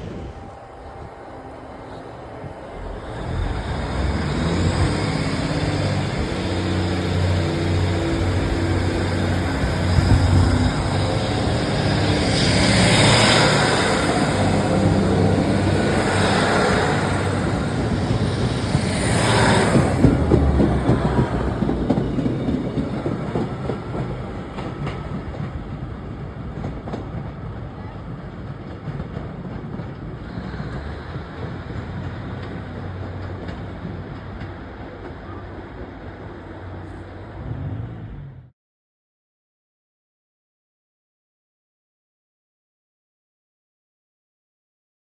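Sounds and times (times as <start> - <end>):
train wheels clickety-clack: 1.9 - 36.0
large vehicle engine running: 2.7 - 22.6.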